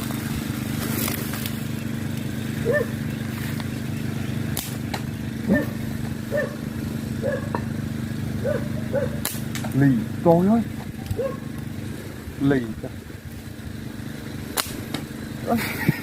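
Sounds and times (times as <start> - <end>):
low motor-like hum: 0.0 - 16.0
sharp clicks: 4.5 - 5.1, 14.6 - 15.1.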